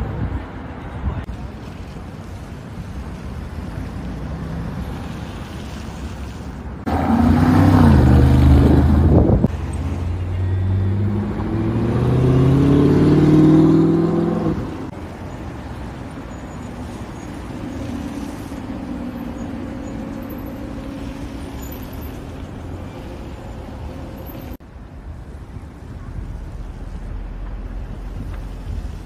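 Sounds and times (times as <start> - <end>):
car accelerating: 6.8 - 14.9
car engine revving: 6.9 - 14.9.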